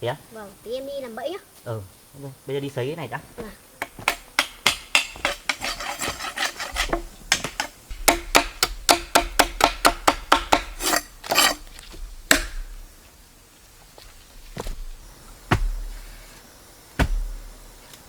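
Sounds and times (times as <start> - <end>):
rasping scraping strokes: 4.7 - 12.7.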